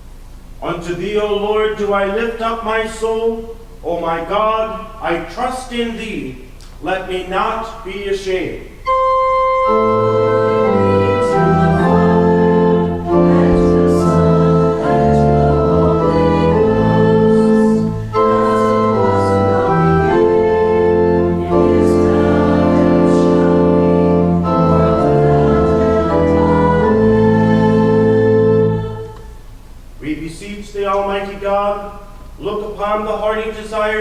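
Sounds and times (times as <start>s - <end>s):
church organ chords: 7.1s - 29.4s
congregation singing: 7.1s - 29.4s.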